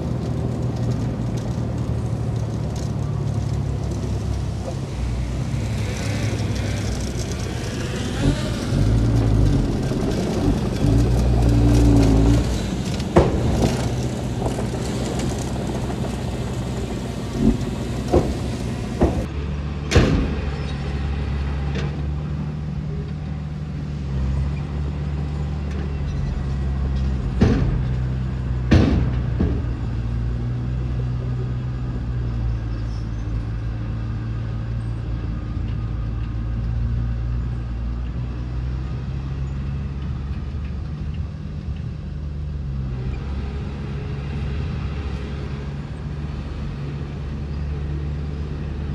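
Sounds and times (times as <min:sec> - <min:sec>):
heavy diesel engine under load: 0:00.0 - 0:48.9
sharp knocks: 0:08.6 - 0:19.3.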